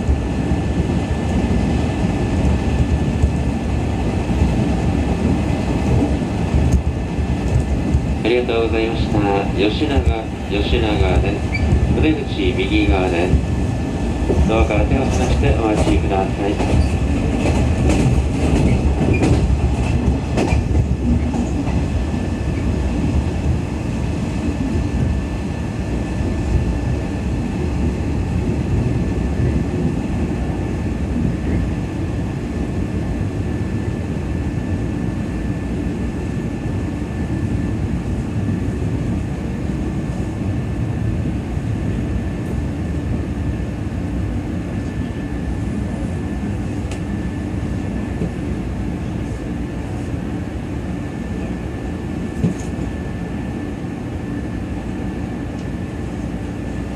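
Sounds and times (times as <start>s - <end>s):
wheels rumbling on rail: 0.0s - 56.9s
rail-joint clicks: 14.3s - 21.8s, 52.4s - 52.9s.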